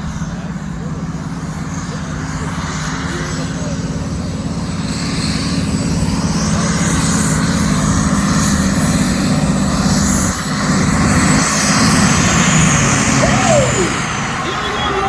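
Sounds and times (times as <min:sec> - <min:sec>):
tractor engine at full power: 0:00.0 - 0:15.0.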